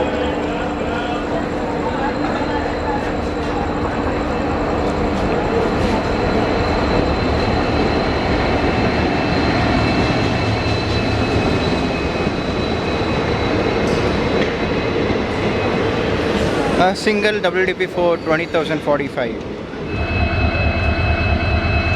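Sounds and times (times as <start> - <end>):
diesel train rumbling past: 0.0 - 21.9.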